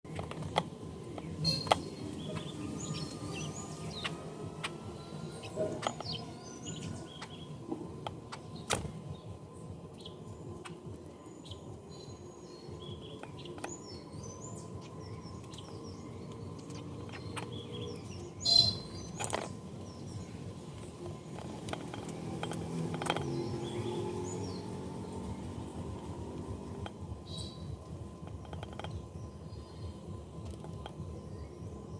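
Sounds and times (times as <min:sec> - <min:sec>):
birds chirping: 0:00.0 - 0:31.9
steady background noise: 0:00.0 - 0:31.9.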